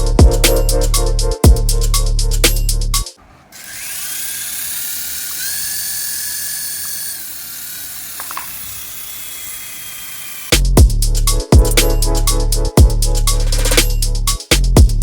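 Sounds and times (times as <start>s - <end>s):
small electric motor whirring: 3.2s - 10.6s.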